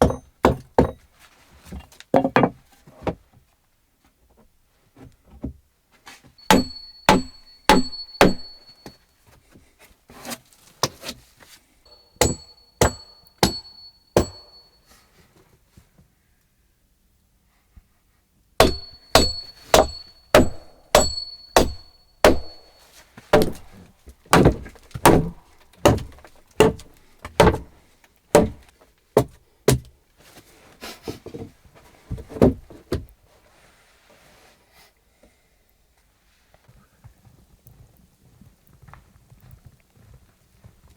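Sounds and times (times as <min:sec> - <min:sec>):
hammer blows on wood: 0:06.4 - 0:09.0, 0:11.9 - 0:14.6, 0:18.6 - 0:23.8.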